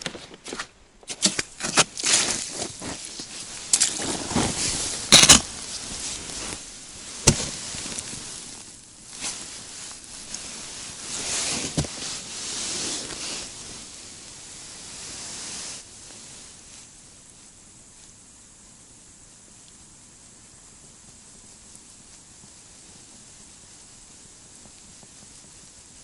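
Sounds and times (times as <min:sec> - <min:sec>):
boots crunching on ice: 0:00.0 - 0:08.4
clothing rustle: 0:00.0 - 0:15.8.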